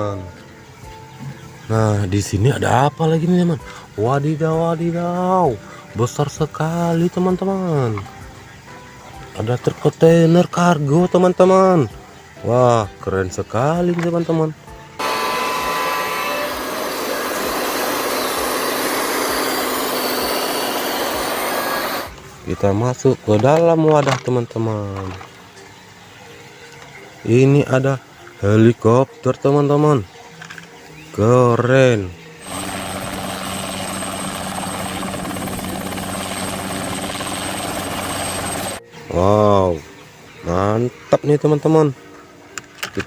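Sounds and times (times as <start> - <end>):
helicopter rotor whir: 15.0 - 22.1, 32.4 - 38.8
mechanical running noise: 15.0 - 22.1, 32.4 - 38.8.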